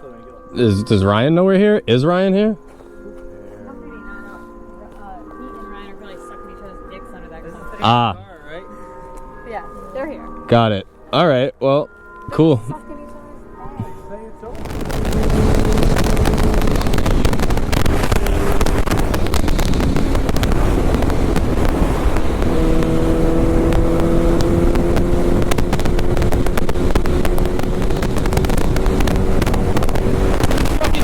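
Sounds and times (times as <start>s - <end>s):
wind buffeting microphone: 13.6s - 31.0s
motorcycle engine running: 14.6s - 31.0s.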